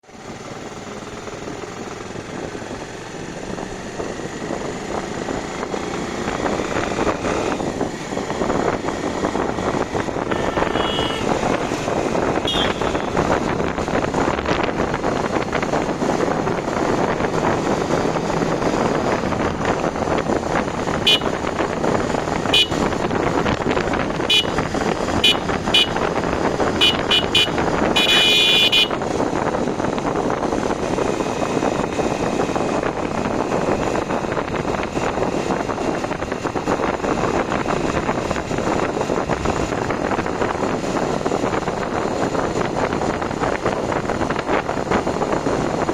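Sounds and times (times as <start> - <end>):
vehicle engine and road noise: 0.0 - 45.9
car horn beeps: 10.3 - 11.5, 12.4 - 13.3, 21.0 - 21.5, 22.4 - 22.9, 24.3 - 24.6, 25.2 - 26.1, 26.7 - 29.0.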